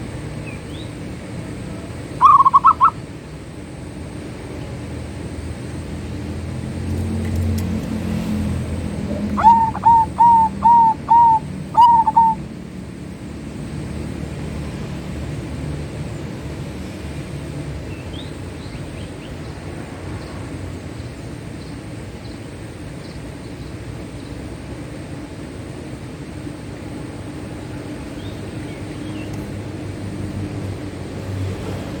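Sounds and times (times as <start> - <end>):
small birds chirping: 0.3 - 1.1, 1.9 - 3.4, 8.7 - 12.5, 27.7 - 30.0
dove cooing: 2.2 - 3.0, 8.8 - 12.5.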